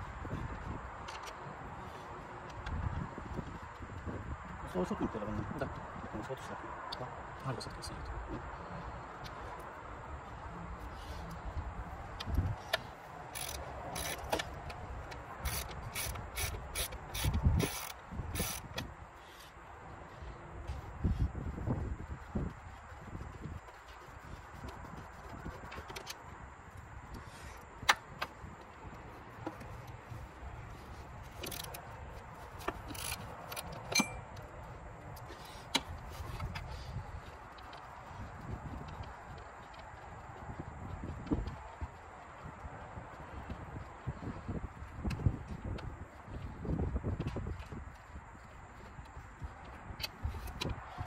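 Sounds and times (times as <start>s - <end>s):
socket wrench ratchet clicking: 12.2s - 14.7s, 15.4s - 18.8s, 31.3s - 31.8s, 32.6s - 34.2s
metal tools clinking: 32.8s - 34.4s
tools knocking against metal: 33.9s - 34.3s.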